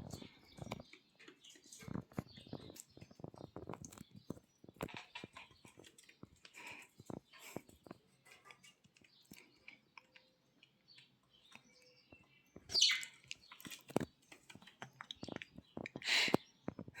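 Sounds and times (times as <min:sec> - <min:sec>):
high falling bird calls: 0:11.0 - 0:16.9
budgerigar chirping: 0:12.7 - 0:13.6.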